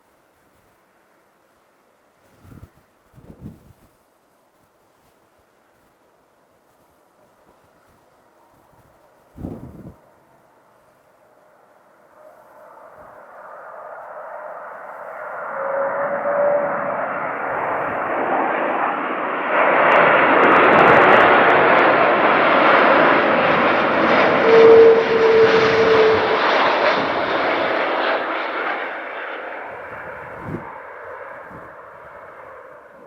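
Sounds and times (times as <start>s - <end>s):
jet airliner engines landing: 9.5s - 33.0s
steady engine whine: 11.2s - 33.0s.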